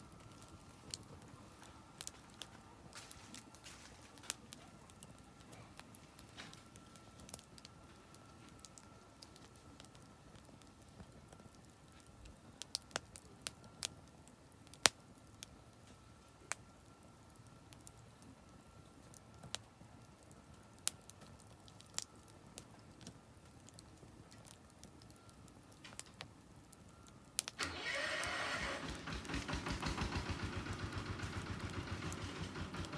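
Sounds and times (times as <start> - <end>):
campfire crackling and popping: 0.0 - 32.9
engine running: 27.6 - 32.9.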